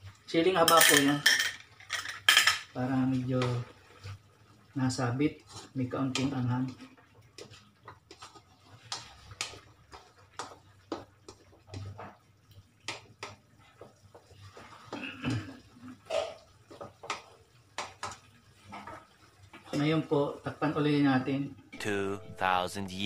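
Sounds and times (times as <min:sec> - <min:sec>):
spatula scraping a metal wok: 0:07.4 - 0:10.6.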